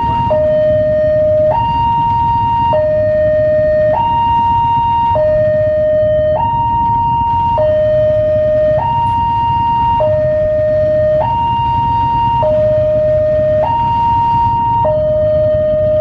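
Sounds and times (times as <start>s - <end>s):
low traffic rumble: 0.0s - 16.0s
two-tone crossing alarm: 0.0s - 16.0s.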